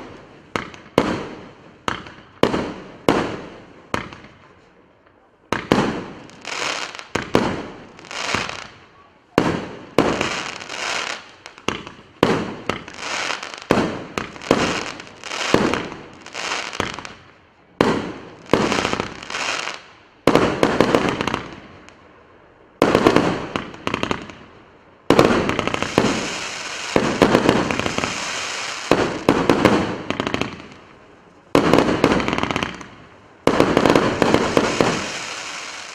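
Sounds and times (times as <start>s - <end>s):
firework crackling: 0.0s - 4.4s, 5.5s - 22.0s, 22.8s - 35.9s
firework battery shots bursting: 25.1s - 30.8s, 31.6s - 35.9s.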